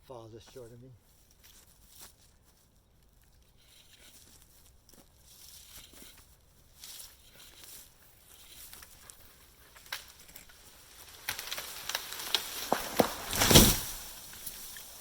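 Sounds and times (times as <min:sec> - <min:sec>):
wood cracking and snapping: 0:08.6 - 0:15.0
tree crashing to the ground: 0:09.7 - 0:15.0.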